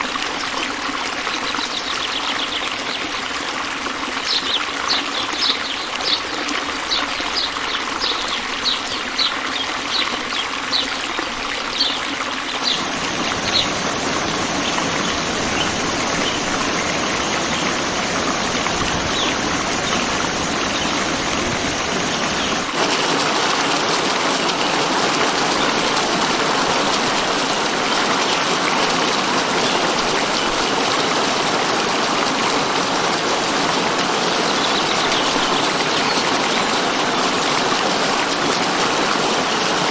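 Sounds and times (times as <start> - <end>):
bird chirping: 12.6 - 22.7
running water rushing: 12.6 - 24.4.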